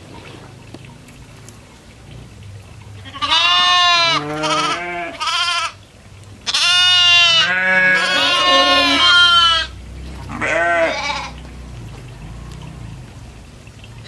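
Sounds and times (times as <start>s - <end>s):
goats bleating: 3.0s - 5.8s, 6.4s - 11.6s.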